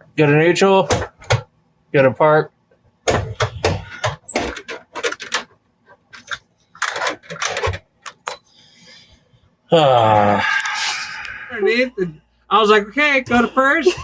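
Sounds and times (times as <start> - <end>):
sharp clicks and knocks: 3.0 - 8.4.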